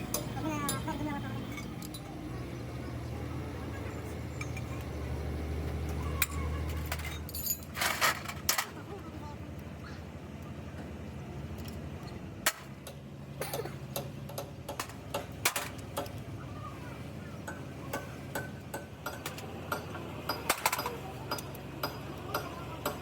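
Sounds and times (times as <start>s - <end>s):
hand tools clicking on metal: 18.4s - 23.0s.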